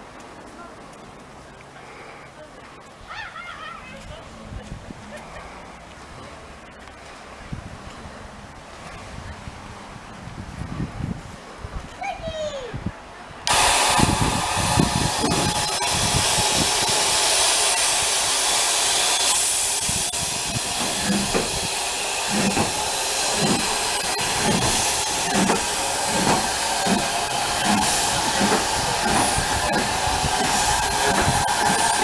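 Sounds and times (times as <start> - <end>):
train low regular thuds: 13.5 - 32.0
train steam hiss: 13.5 - 32.0.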